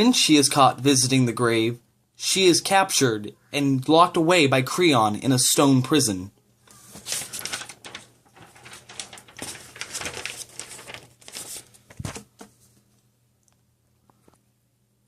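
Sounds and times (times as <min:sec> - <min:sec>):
rustling handling noise: 0:06.6 - 0:13.1.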